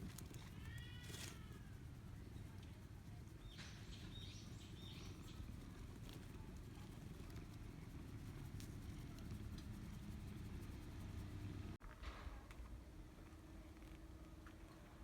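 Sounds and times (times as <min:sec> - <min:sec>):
faint bird chirping: 0:00.0 - 0:11.8
low background rumble: 0:00.0 - 0:11.8.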